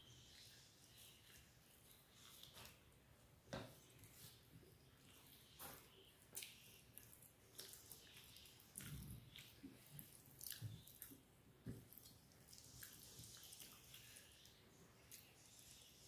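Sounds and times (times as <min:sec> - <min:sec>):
person chewing food: 0:05.2 - 0:15.6.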